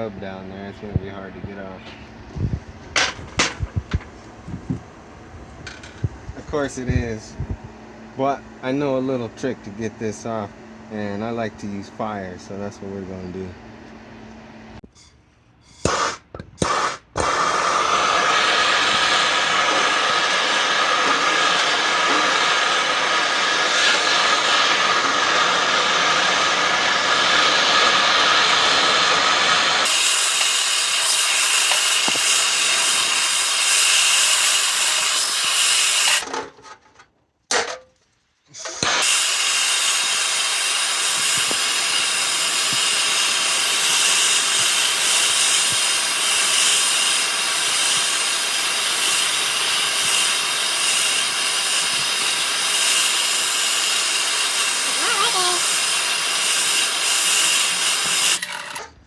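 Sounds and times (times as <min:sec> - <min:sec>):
gas torch hissing: 0:15.6 - 0:36.2, 0:38.5 - 0:58.8.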